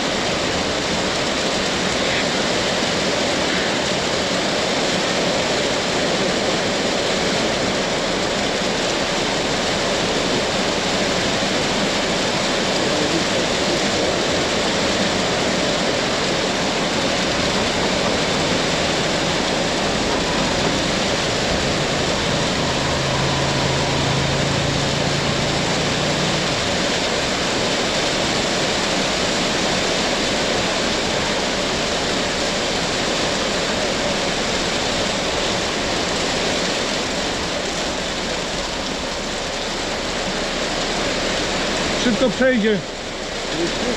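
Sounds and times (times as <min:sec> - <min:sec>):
heavy rain pouring: 0:00.0 - 0:43.9
low hum: 0:16.8 - 0:28.0.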